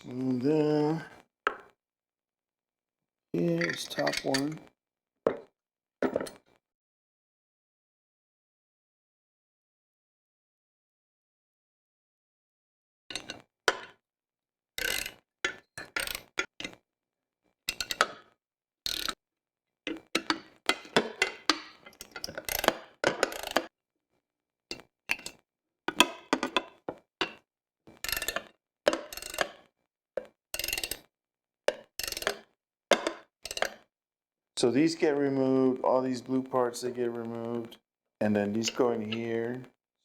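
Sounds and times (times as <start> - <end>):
metal parts clinking: 3.4 - 4.5, 17.7 - 18.1, 19.9 - 23.7, 28.0 - 29.6, 30.6 - 31.1, 32.0 - 33.8
ratchet wrench clicking: 22.4 - 23.7, 28.0 - 29.5, 30.6 - 31.0, 32.0 - 32.4.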